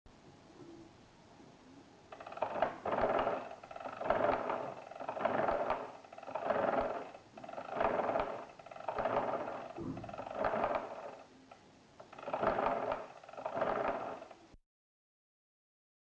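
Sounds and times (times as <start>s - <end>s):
mechanical calculator gears whirring: 2.1s - 14.6s.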